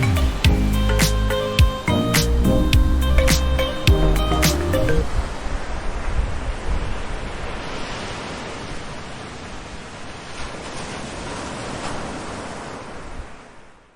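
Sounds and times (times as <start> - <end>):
ocean waves on beach: 0.0 - 13.9.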